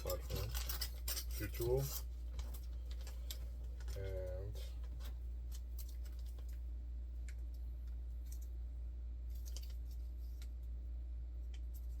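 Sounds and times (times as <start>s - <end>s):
light clicks and ticks of handling: 0.0s - 8.6s
steady low hum: 0.0s - 12.0s.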